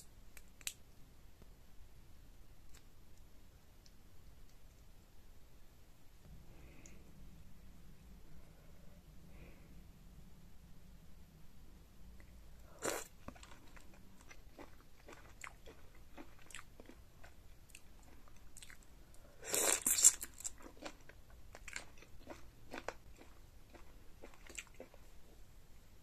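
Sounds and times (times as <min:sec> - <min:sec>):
wet chewing: 0:12.8 - 0:18.8, 0:19.5 - 0:25.1.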